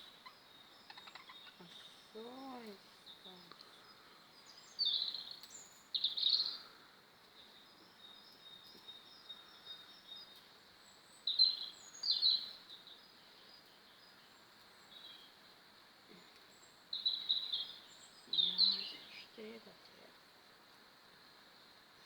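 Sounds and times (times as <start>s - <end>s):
harsh bird chirps: 0.0s - 2.2s
budgerigars chattering: 0.2s - 2.7s.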